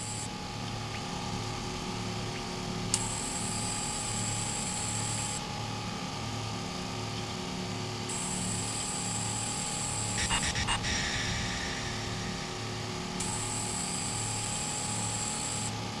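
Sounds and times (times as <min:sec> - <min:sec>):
high-pitched synthesized tones: 0:10.2 - 0:12.8
pulsing low hum: 0:10.2 - 0:13.6.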